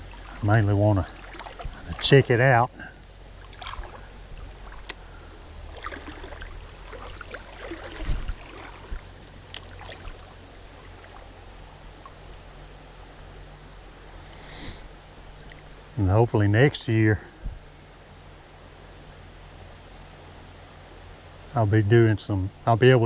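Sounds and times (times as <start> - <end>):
water sloshing from wading: 0.0 - 12.9, 15.2 - 16.0
dull thump: 8.0 - 9.1.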